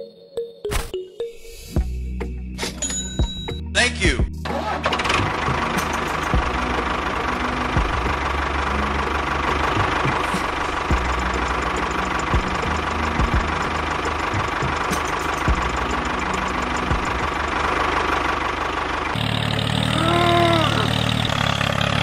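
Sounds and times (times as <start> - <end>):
mini tractor engine running: 4.5 - 22.0
person calling: 19.9 - 21.0.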